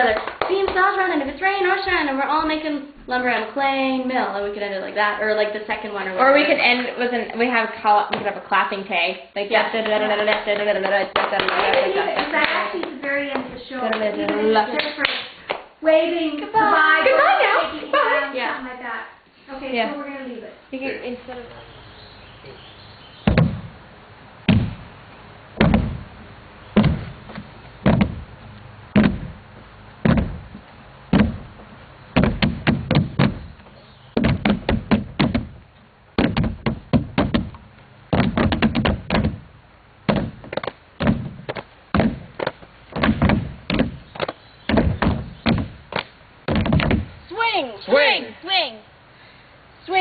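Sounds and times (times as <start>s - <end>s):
percussion knocks: 23.2s - 23.8s, 24.5s - 24.9s, 25.6s - 26.1s, 26.8s - 28.3s, 28.9s - 29.4s, 30.0s - 35.6s, 36.2s - 39.5s, 40.1s - 47.2s.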